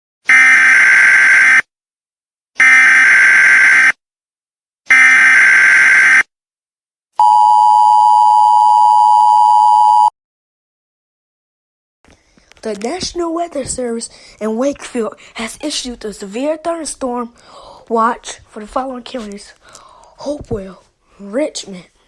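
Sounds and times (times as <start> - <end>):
two-tone attention signal: 7.2 - 10.1.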